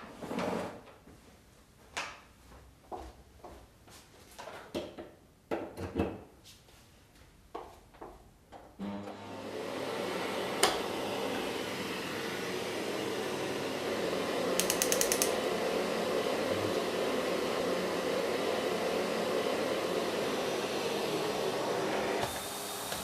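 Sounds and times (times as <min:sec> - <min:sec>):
vacuum cleaner running: 0:08.8 - 0:23.0
rattle of clicks: 0:14.6 - 0:15.3
sharp click: 0:14.6 - 0:15.4.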